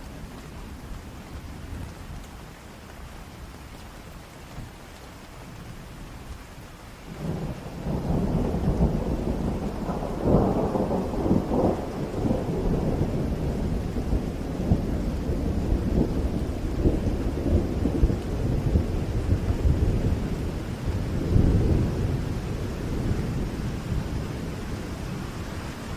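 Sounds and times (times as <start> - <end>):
steady rain: 0.0 - 25.9
thunder rumbling: 7.1 - 25.9.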